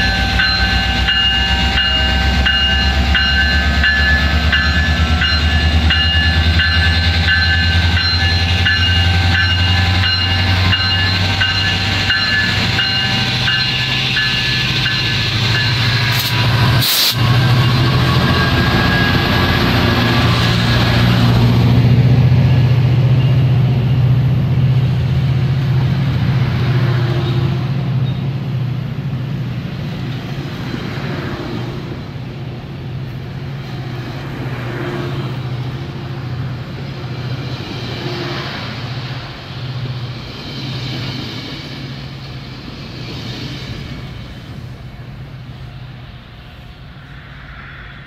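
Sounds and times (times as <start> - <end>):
diesel locomotive drone: 0.0 - 48.0
train wheels on rails: 0.0 - 48.0.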